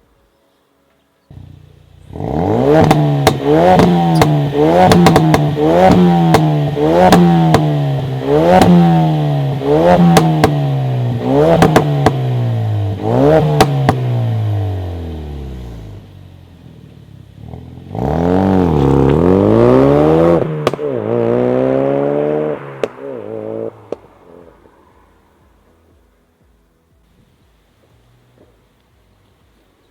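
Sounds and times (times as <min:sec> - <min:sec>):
exhaust pops and crackles: 0:01.3 - 0:09.0, 0:09.6 - 0:14.4, 0:16.7 - 0:21.3
turbo car engine revving: 0:01.3 - 0:24.6.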